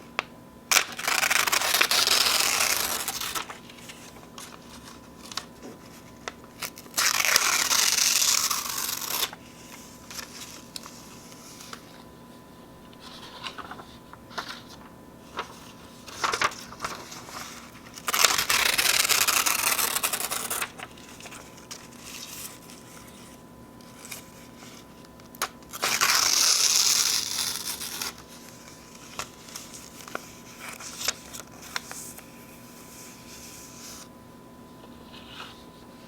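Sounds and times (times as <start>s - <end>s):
paper crinkling: 0.2s - 34.1s
paper tearing: 0.7s - 4.6s, 5.2s - 11.8s, 16.1s - 22.8s, 25.7s - 32.0s.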